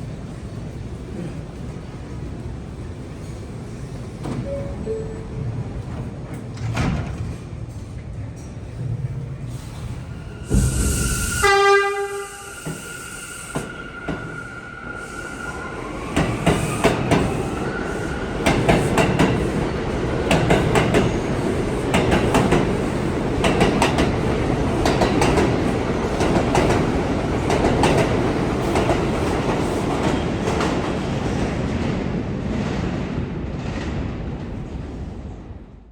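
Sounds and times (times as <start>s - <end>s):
train horn blast: 10.7s - 12.6s
train wheels clattering on rails: 16.0s - 35.1s.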